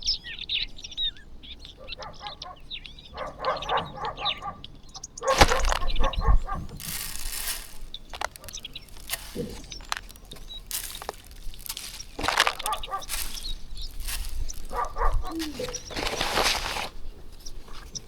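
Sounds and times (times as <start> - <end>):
flock of birds chirping: 0.0 - 18.0
loud thump and rustle: 5.3 - 6.2.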